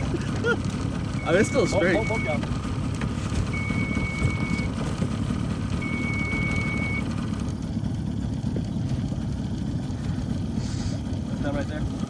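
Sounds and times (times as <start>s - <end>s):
boat motor running: 0.0s - 12.0s
water and wind noise: 0.0s - 12.0s
high electronic beeps: 1.2s - 2.4s.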